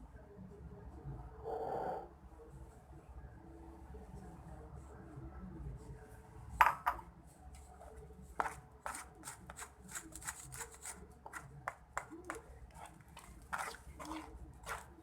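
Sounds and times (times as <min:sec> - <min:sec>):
kitchen utensils clicking and scraping: 0:08.4 - 0:15.0.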